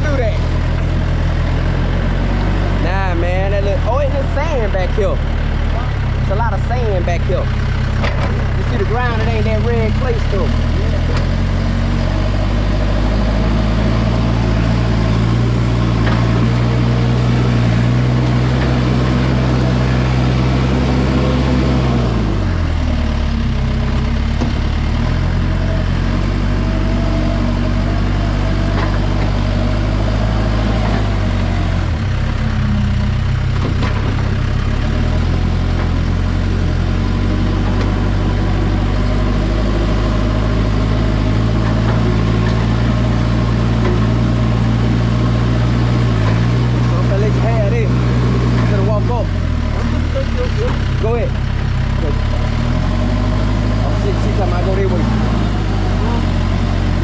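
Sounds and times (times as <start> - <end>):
backhoe diesel engine running: 0.0 - 57.0.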